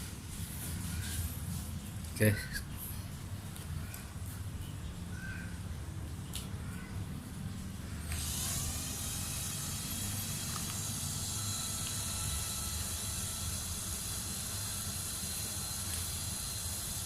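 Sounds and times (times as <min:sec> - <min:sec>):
small electric motor whining: 0:08.0 - 0:17.0.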